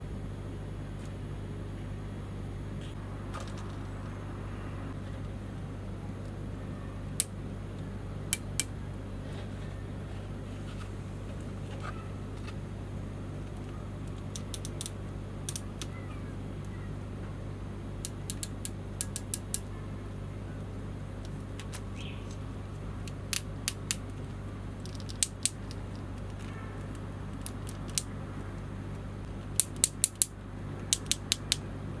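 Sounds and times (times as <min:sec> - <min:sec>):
steady low hum: 0:00.0 - 0:32.0
sharp clicks: 0:14.1 - 0:16.0, 0:18.0 - 0:19.7, 0:29.5 - 0:31.6.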